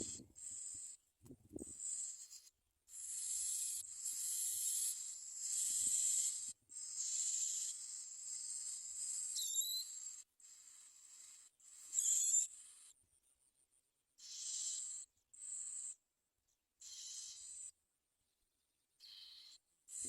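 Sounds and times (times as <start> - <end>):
nestlings begging rasp: 0.0 - 1.0, 1.6 - 12.9, 14.2 - 16.0, 16.8 - 17.7.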